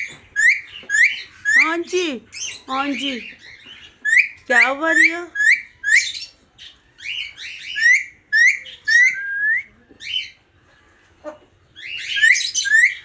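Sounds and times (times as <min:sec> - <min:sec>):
parrot whistling: 0:00.4 - 0:01.7, 0:04.0 - 0:06.3, 0:07.6 - 0:09.7, 0:11.8 - 0:13.0.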